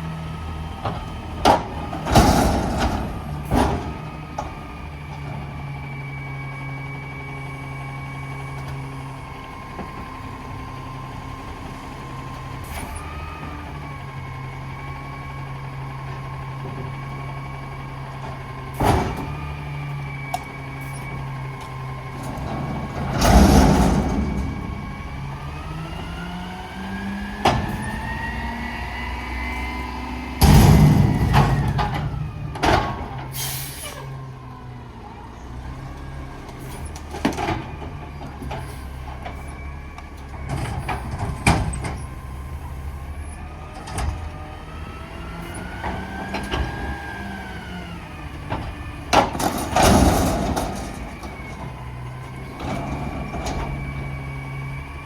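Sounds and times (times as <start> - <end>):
garbage truck engine revving: 0.0 - 55.0
clanks and knocks: 21.6 - 26.6, 30.4 - 33.3.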